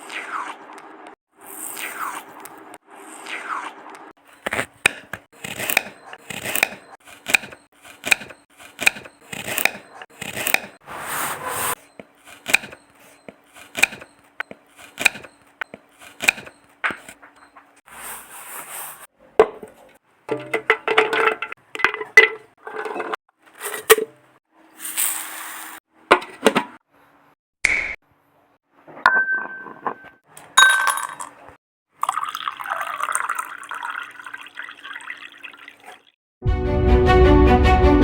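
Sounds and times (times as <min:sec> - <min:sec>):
knife scraping cutting board: 0:03.2 - 0:17.3, 0:17.9 - 0:20.0, 0:22.6 - 0:24.1
knife slicing fruit: 0:04.3 - 0:10.7, 0:12.3 - 0:14.1, 0:14.8 - 0:15.3, 0:16.0 - 0:17.2.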